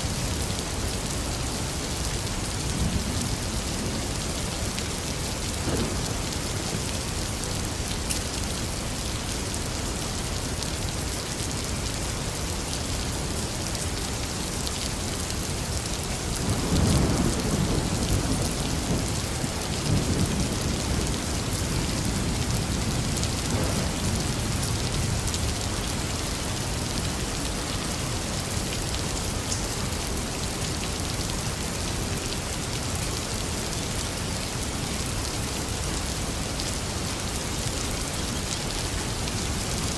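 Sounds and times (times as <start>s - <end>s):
steady rain falling: 0.0s - 39.9s
thunder rumbling: 2.5s - 7.8s, 16.4s - 25.6s.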